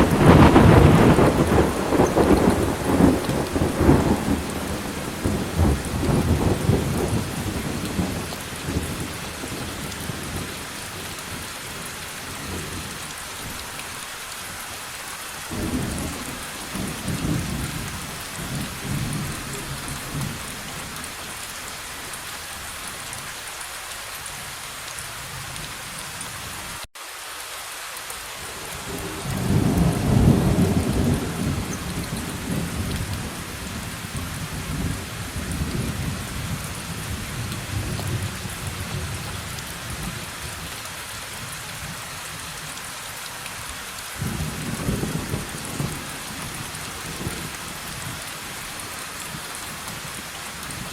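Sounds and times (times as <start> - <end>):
rolling thunder: 0.0 - 10.6, 15.5 - 20.8, 28.9 - 40.3
steady rain: 0.0 - 50.9.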